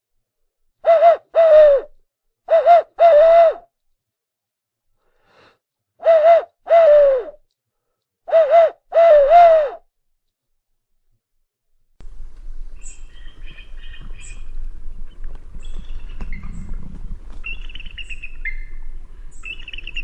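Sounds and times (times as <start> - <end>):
owl hooting: 0.8 - 3.6, 6.0 - 7.4, 8.3 - 9.8.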